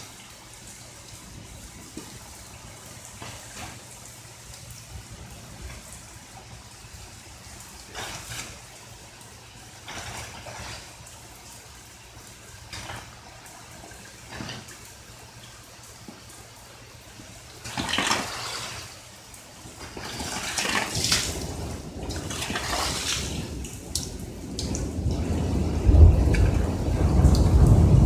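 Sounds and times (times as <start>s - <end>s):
rain: 0.0s - 28.0s
deep roll of thunder: 21.0s - 28.0s.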